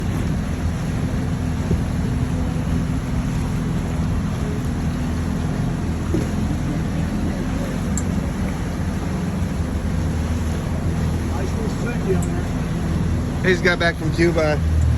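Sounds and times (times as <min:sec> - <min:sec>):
boat engine running: 0:00.0 - 0:14.9.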